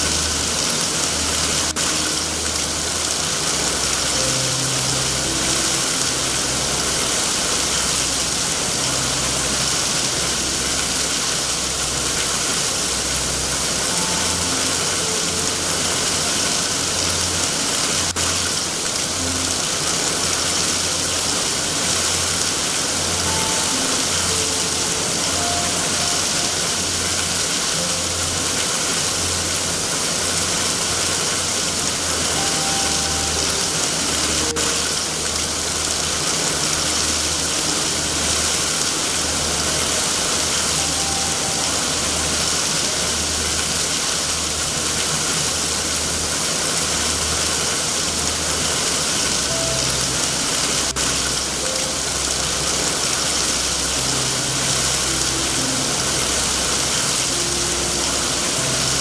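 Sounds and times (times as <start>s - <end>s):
heavy rain hiss: 0.0s - 59.0s.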